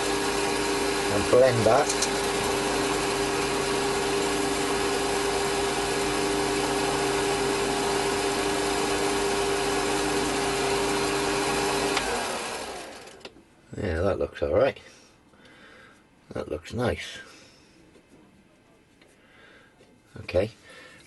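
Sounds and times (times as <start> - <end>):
lathe tool cutting metal: 0.0 - 13.2
lathe motor humming: 0.0 - 13.3.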